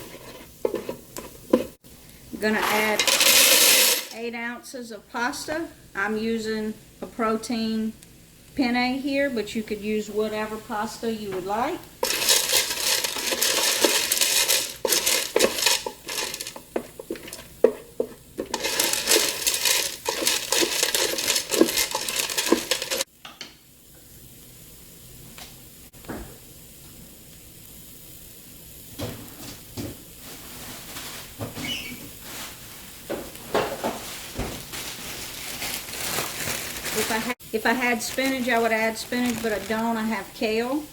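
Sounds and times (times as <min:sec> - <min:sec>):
vegetables sizzling: 0:00.0 - 0:04.3, 0:05.5 - 0:40.9
dry pasta rattling in a pot: 0:02.4 - 0:04.2, 0:12.0 - 0:23.1, 0:34.0 - 0:40.3.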